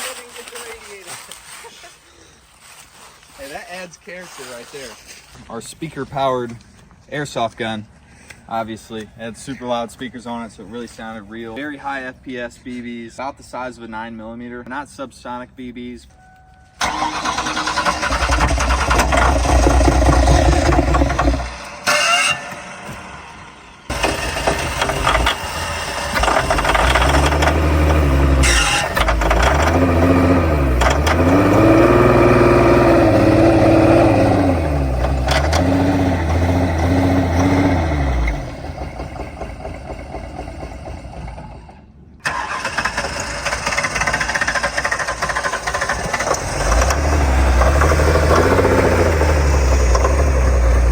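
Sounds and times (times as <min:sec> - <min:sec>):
car engine revving: 0:16.8 - 0:50.9.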